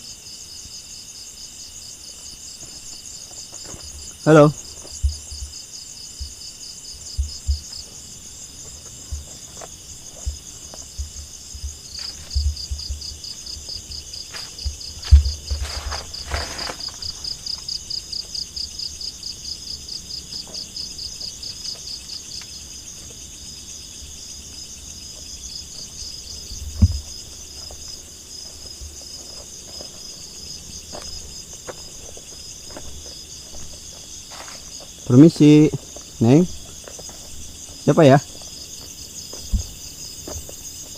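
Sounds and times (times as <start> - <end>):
crickets chirring: 0.0 - 40.9
low thumps: 7.1 - 7.8, 9.0 - 14.0, 14.6 - 16.6, 26.5 - 27.2, 39.4 - 40.5.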